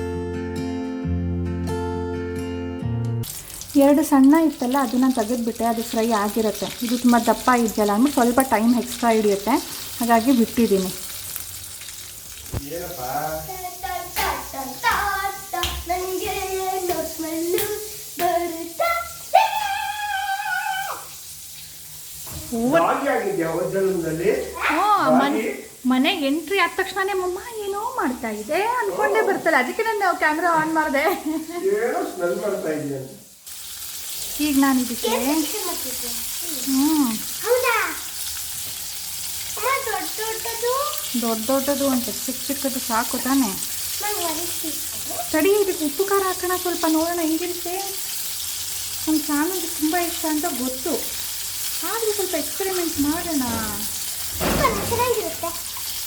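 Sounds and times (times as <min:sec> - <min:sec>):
chicken sizzling in oil: 0:03.2 - 0:56.0
sharp percussive hits: 0:53.4 - 0:55.9.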